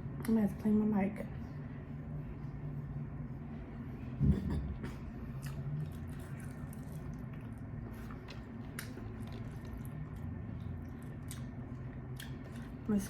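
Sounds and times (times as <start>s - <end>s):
steady low hum: 0.0s - 13.0s
wet chewing and lip smacks: 5.3s - 12.8s.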